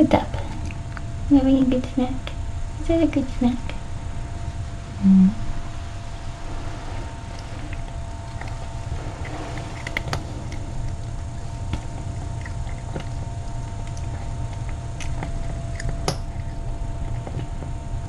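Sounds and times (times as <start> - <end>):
steady low hum: 0.0 - 18.0
cat chewing crunches: 0.3 - 1.2, 5.6 - 17.9.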